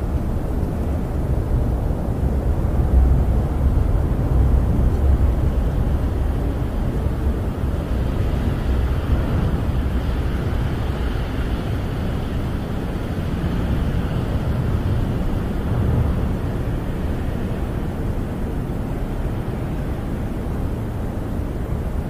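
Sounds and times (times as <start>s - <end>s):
storm wind rushing: 0.0s - 22.0s.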